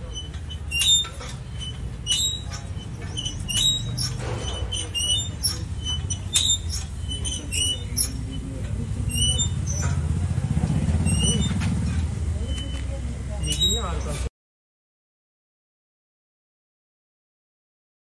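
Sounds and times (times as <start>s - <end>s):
high squeaks: 0.0s - 14.3s
low machine rumble: 0.0s - 14.3s.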